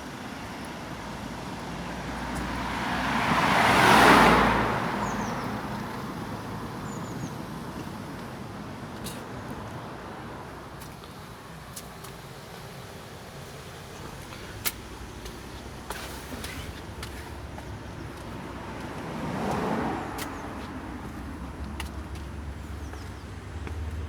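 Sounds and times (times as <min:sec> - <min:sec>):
road traffic: 0:00.0 - 0:24.0
car passing close: 0:01.0 - 0:11.5, 0:12.5 - 0:24.0.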